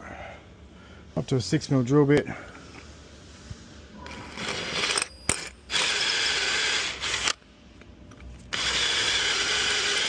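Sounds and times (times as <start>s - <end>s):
electric drill drilling metal: 4.4s - 7.4s, 8.5s - 10.0s.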